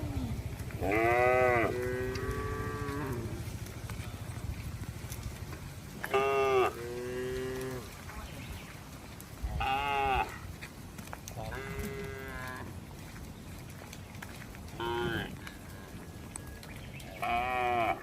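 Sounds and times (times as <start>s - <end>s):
cattle mooing: 0.0s - 3.8s, 6.0s - 8.0s, 9.5s - 10.4s, 11.4s - 12.7s, 14.7s - 15.4s, 17.2s - 18.0s.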